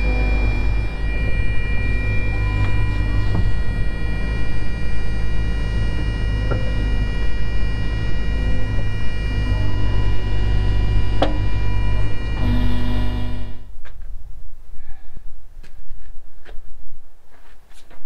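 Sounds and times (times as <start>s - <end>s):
excavator diesel engine humming: 0.0s - 13.7s
high whining tones: 0.0s - 14.0s.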